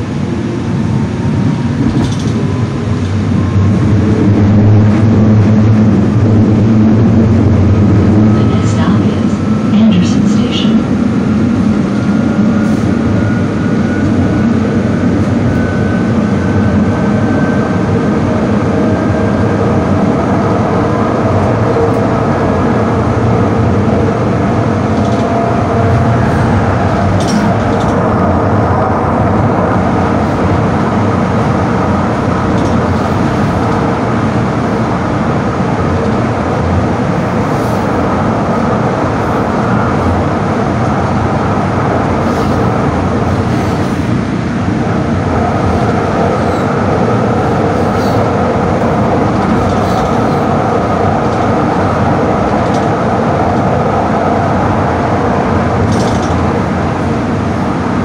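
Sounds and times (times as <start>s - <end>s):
train car rumbling: 0.0s - 58.0s.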